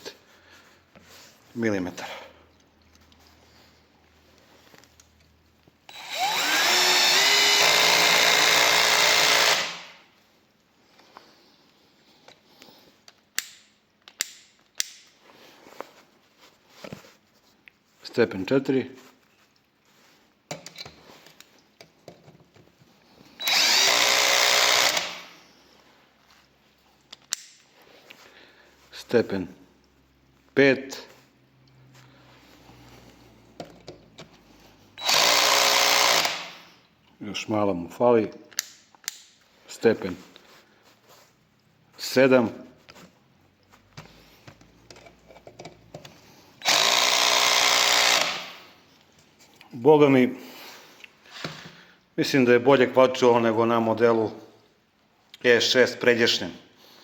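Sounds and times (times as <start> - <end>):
cordless drill driving screw: 5.9 - 10.0, 23.4 - 25.3, 35.0 - 36.7, 46.6 - 48.7.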